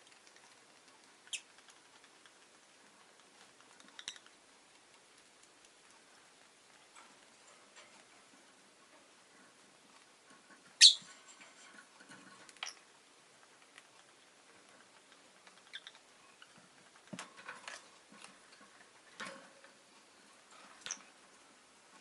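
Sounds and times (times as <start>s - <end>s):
faint bird chirps and clicks: 0.0s - 2.4s, 3.6s - 4.4s, 12.5s - 12.8s, 15.1s - 16.6s, 20.8s - 21.1s
bird sharp high chirp: 10.8s - 11.1s.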